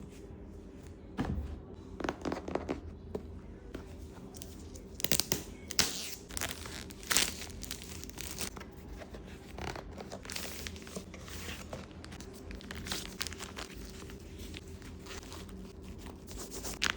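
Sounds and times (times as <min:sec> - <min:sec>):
packaging tearing and crinkling: 0:12.2 - 0:14.1.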